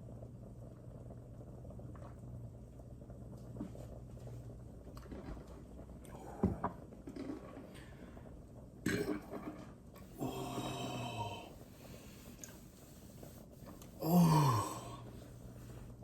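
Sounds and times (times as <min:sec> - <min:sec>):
throaty burp: 0:08.8 - 0:09.4, 0:14.0 - 0:15.0
man gulping and gasping: 0:08.8 - 0:16.0.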